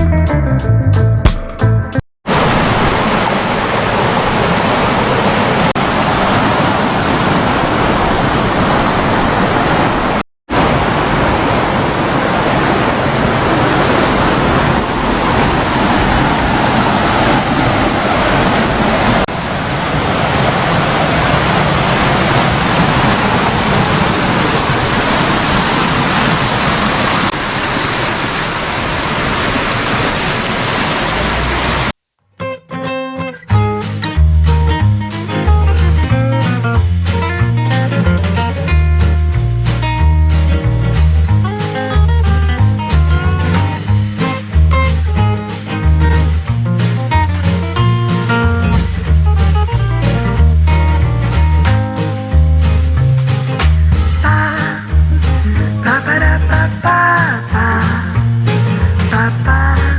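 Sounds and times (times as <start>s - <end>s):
stream rushing over rock: 2.3s - 32.0s.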